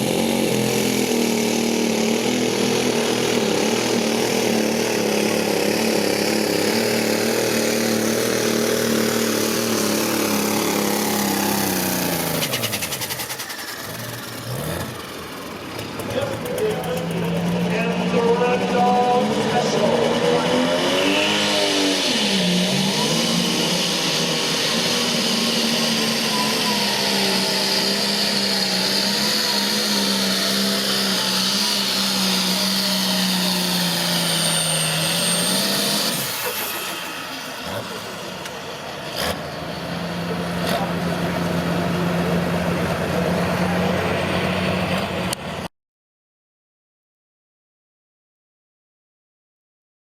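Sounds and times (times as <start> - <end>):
diesel engine running hard: 0.0 - 45.7
high whine: 16.0 - 39.0.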